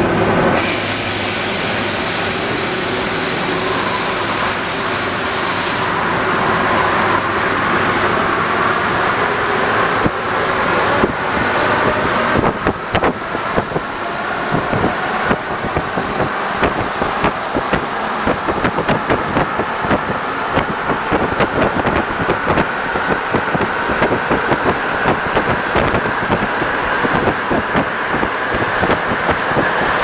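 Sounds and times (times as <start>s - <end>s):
metro train rumbling: 0.0s - 30.0s
loud hiss: 0.5s - 6.2s.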